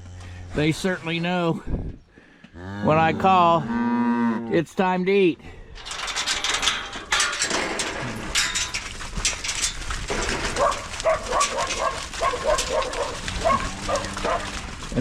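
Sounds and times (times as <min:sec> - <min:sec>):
knocks and clatter at feed bunk: 0:05.8 - 0:15.0.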